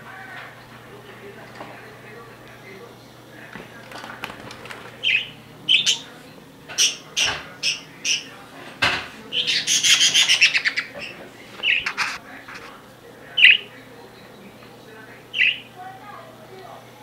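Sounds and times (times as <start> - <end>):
caged bird chattering calls: 4.7 - 12.2, 13.4 - 13.8, 15.3 - 15.8.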